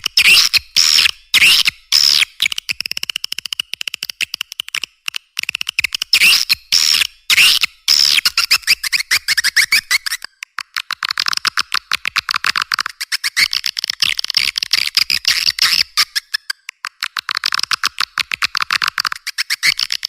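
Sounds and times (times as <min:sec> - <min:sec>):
recorded swiftlet chirping: 0:00.0 - 0:02.8, 0:05.7 - 0:11.8, 0:12.7 - 0:18.0, 0:18.6 - 0:20.0.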